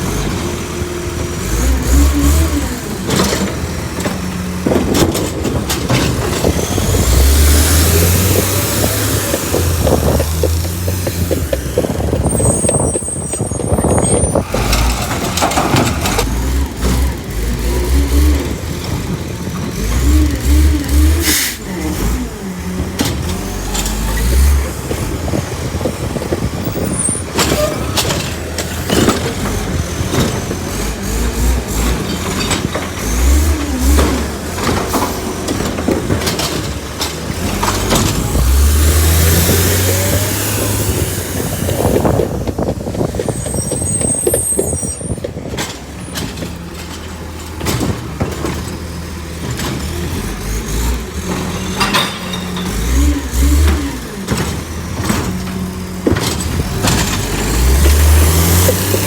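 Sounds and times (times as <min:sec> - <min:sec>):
garbage truck diesel engine: 0:00.0 - 0:59.0
air brake hisses: 0:21.2 - 0:21.7.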